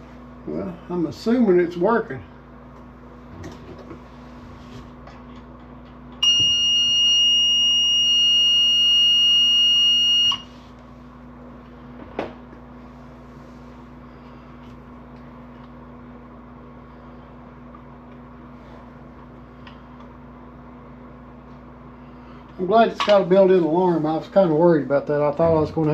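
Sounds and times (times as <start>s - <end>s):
high-pitched alarm beep: 6.2s - 10.5s.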